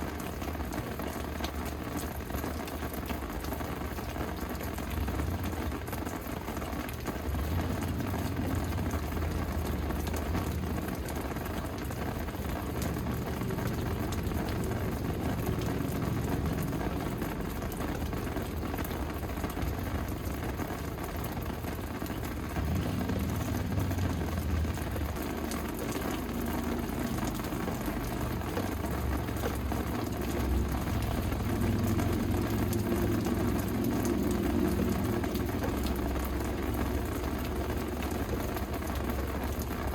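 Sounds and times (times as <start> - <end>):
rain falling: 0.0 - 39.9
low rumble: 7.2 - 38.2.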